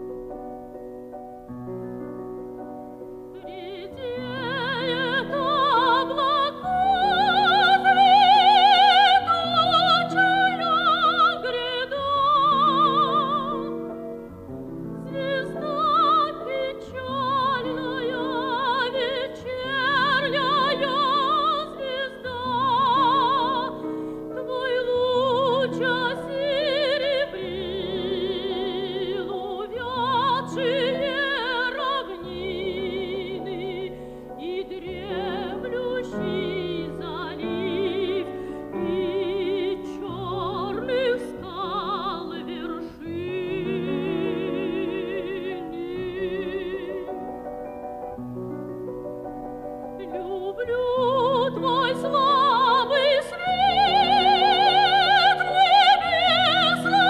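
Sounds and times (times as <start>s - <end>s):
piano accompaniment: 0.0s - 57.0s
soprano singing with vibrato: 3.2s - 47.9s, 49.7s - 57.0s.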